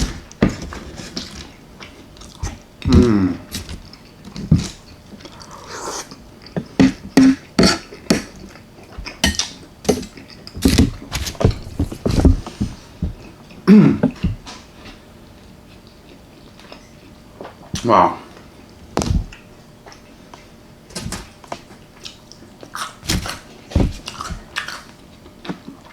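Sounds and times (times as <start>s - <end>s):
person humming with enjoyment: 2.9s - 3.5s.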